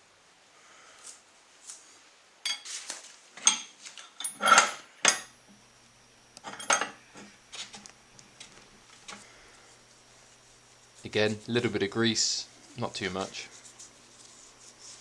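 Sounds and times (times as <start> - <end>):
metal parts clinking and knocking: 3.4 - 5.3, 6.4 - 7.8.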